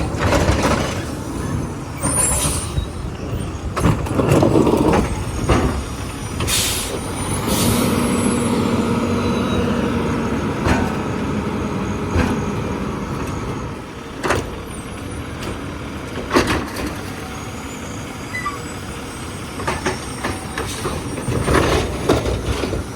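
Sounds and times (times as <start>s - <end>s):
garbage truck running: 0.0s - 22.9s
short air hisses: 6.5s - 7.9s.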